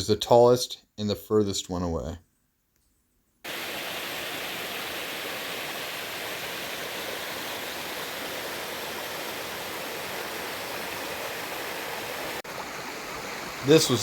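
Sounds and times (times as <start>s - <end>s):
water rushing: 3.5s - 14.0s.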